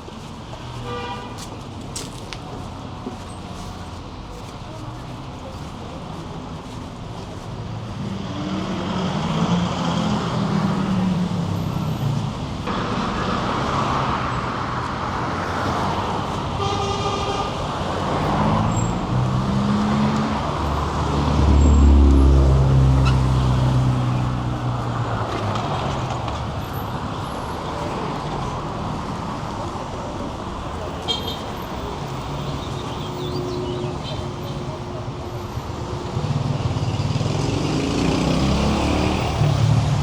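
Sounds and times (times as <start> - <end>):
car engines passing: 4.0 - 40.0
heavy vehicle low rumble: 10.2 - 31.0.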